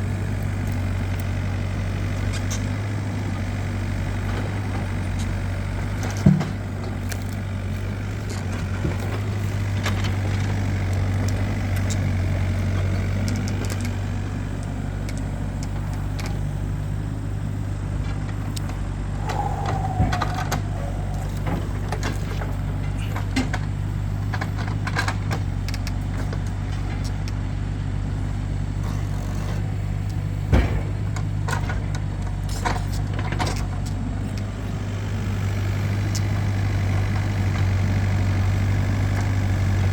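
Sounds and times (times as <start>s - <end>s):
vehicle engine idling: 0.0s - 39.9s
sharp knocks and clatters: 30.5s - 32.0s.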